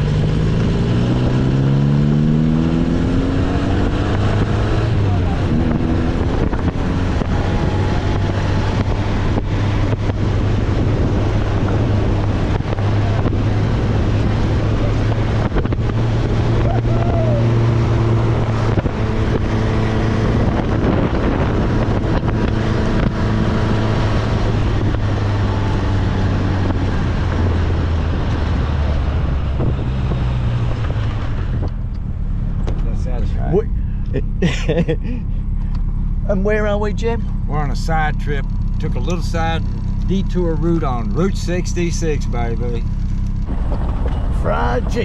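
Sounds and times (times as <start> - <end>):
car engine drone: 0.0 - 45.0
wind buffeting microphone: 2.3 - 34.2.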